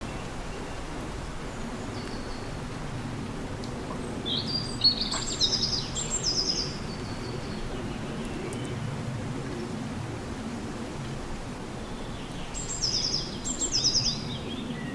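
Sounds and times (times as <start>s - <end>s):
low background noise: 0.0s - 14.9s
songbird chirping and trilling: 4.2s - 8.8s, 12.0s - 14.9s.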